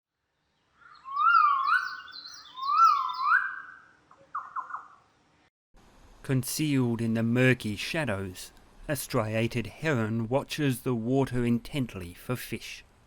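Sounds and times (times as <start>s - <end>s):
bird calling with whistled notes: 0.6s - 5.1s.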